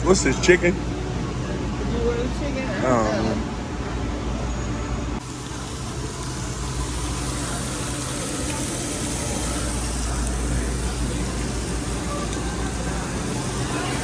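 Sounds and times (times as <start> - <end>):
even hiss: 5.2 - 14.0.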